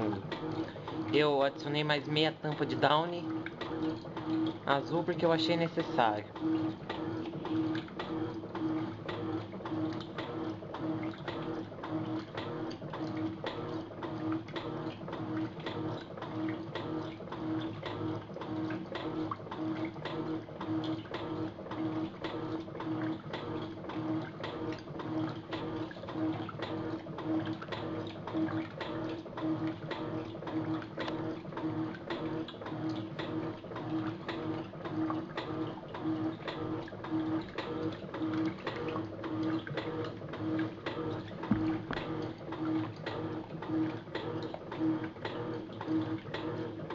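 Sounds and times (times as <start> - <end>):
water sloshing: 0.0 - 46.6
washing machine motor humming: 0.0 - 46.9.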